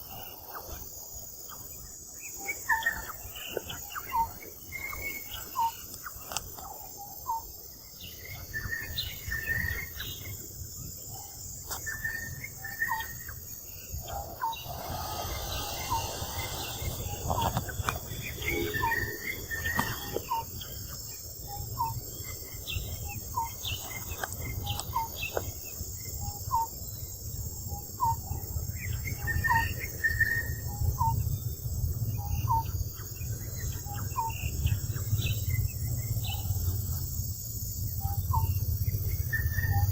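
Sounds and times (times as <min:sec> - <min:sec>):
high insect hiss: 0:00.0 - 0:39.9
low rumble: 0:14.0 - 0:19.7.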